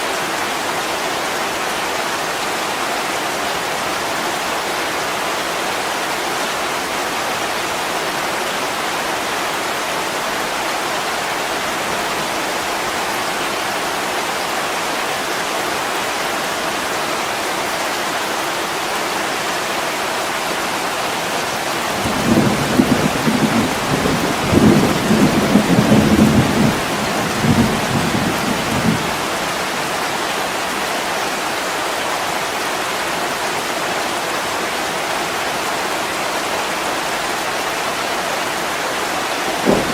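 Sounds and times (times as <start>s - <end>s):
heavy rain on window glass: 18.7s - 34.8s, 35.6s - 39.9s
thunder rumbling: 21.9s - 29.8s, 39.6s - 39.9s.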